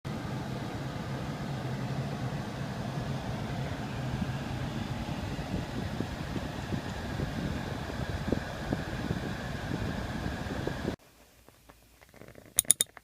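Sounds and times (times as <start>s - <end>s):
air conditioning humming: 0.1s - 12.8s
clicking and rattling: 11.5s - 13.0s.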